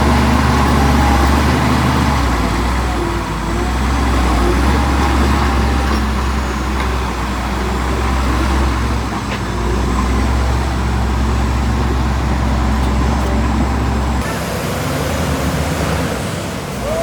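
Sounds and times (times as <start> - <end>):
heavy machine engine droning: 0.0 - 17.0.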